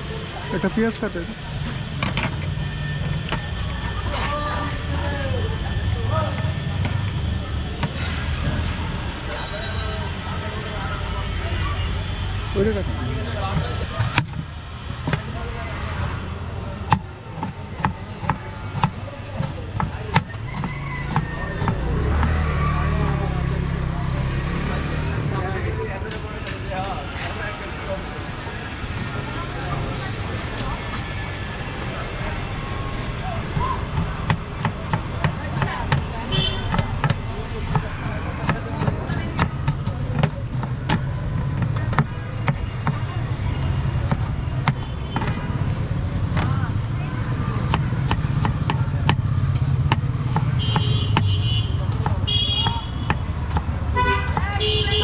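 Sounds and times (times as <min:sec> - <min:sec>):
street traffic: 0:00.0 - 0:55.0
knife chopping onion on board: 0:16.9 - 0:22.4, 0:33.6 - 0:42.6, 0:49.8 - 0:53.8
vehicle passing: 0:20.8 - 0:26.1
sharp knocks and taps: 0:47.7 - 0:54.6.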